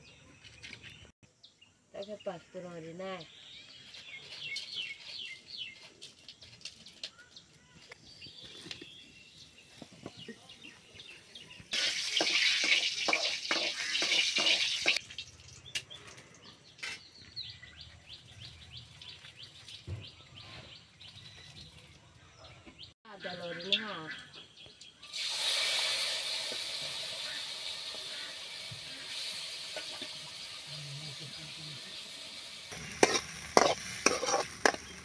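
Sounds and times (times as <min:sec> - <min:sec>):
food sizzling in hot oil: 0:11.7 - 0:15.9, 0:25.0 - 0:35.0.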